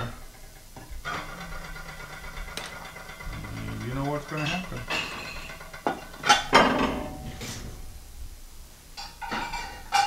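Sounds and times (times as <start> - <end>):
hard objects knocking: 0.8 - 7.2.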